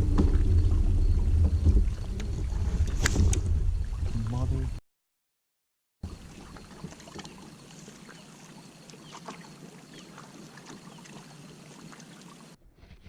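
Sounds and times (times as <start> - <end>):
ticks against a hull: 0.0 - 4.4, 6.1 - 7.5.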